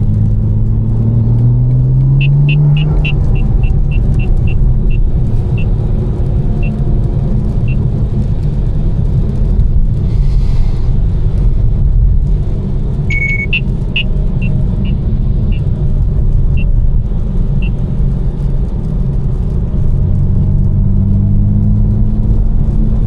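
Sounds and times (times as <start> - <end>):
car engine droning at cruise: 0.0 - 23.0
tyre noise on wet road: 0.0 - 23.0
short beep: 2.2 - 4.6, 13.1 - 15.0.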